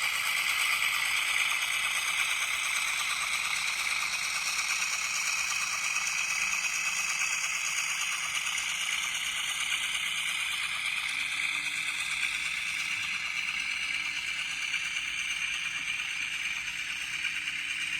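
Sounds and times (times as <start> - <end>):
model train rattling on track: 0.0 - 17.9.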